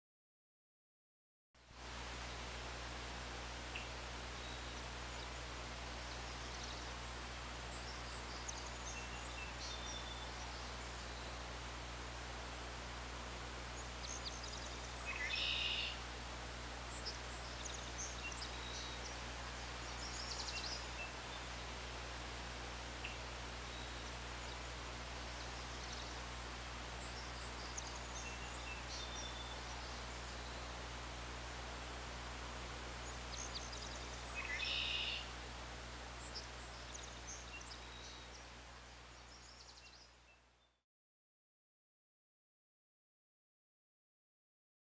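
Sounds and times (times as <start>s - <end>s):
songbirds calling and trilling: 2.6s - 40.8s
birds chirping: 13.6s - 16.0s, 16.6s - 31.0s, 32.9s - 35.4s.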